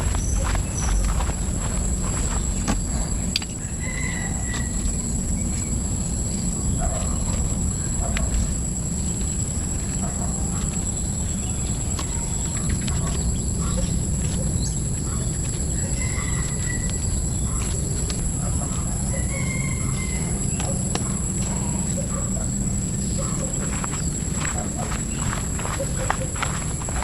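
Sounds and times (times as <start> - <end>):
low rumble: 0.0 - 3.5
bird chirps: 0.0 - 5.8.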